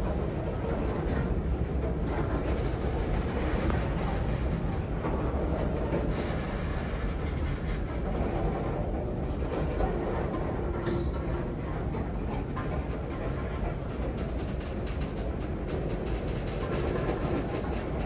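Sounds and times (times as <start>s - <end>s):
train wheels rumbling on bridge: 0.0s - 18.0s.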